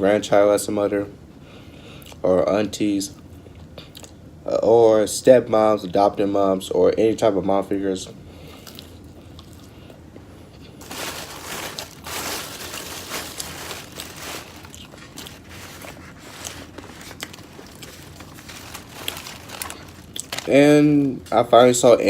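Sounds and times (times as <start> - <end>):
biting and chewing food: 8.4 - 10.0, 10.6 - 20.5.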